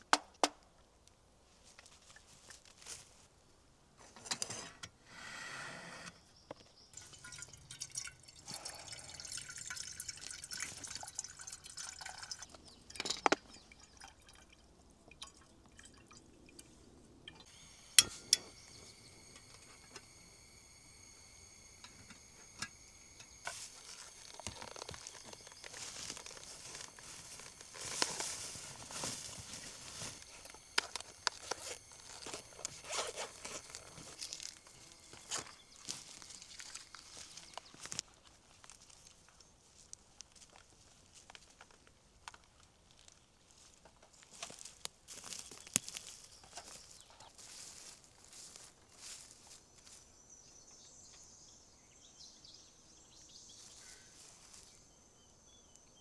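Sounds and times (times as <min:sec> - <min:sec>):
liquid pouring and dripping: 0:07.0 - 0:38.0.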